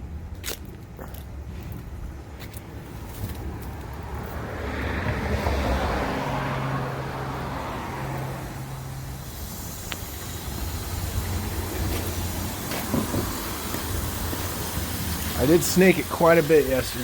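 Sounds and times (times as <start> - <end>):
car passing by: 3.7 - 14.6.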